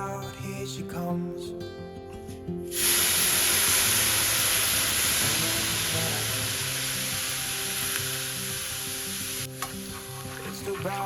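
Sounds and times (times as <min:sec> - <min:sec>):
soft background music: 0:00.0 - 0:11.0
food sizzling in a pan: 0:02.7 - 0:10.5.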